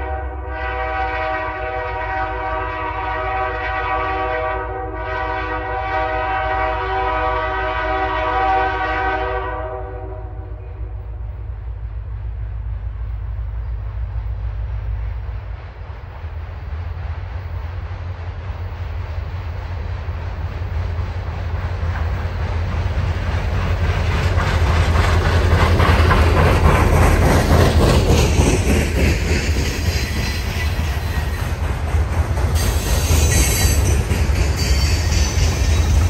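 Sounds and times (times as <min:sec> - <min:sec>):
diesel locomotive rumble: 0:00.0 - 0:36.0.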